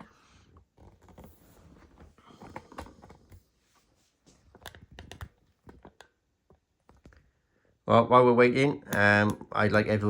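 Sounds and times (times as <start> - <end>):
light clicks and knocks of handling: 4.2 - 7.3.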